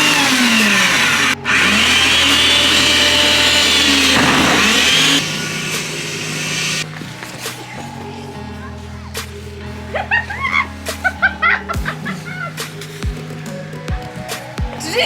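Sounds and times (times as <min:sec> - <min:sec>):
snowblower engine running: 0:00.0 - 0:06.8.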